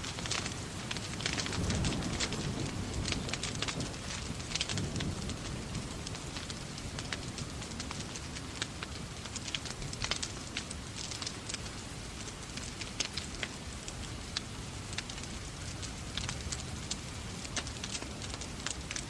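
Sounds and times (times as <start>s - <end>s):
rain rushing: 0.0s - 19.0s
wood fire crackling: 0.0s - 19.0s.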